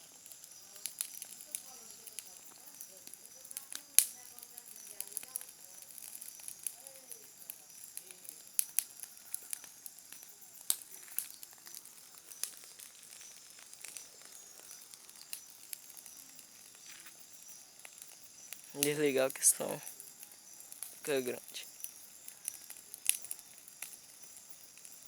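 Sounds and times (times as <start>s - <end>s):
campfire crackling and popping: 0.0s - 25.0s
steady high hiss: 8.3s - 23.3s.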